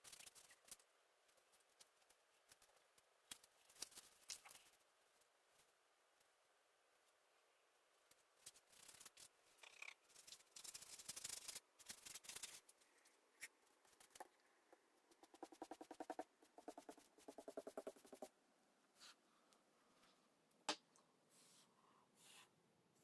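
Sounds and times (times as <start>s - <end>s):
scratching and rubbing strokes: 8.1s - 14.3s.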